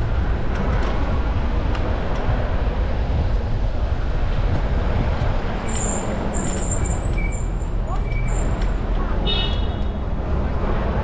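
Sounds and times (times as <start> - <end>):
bike rolling noise: 0.0 - 9.1
wind buffeting microphone: 0.0 - 11.0
high squeal: 5.6 - 8.6.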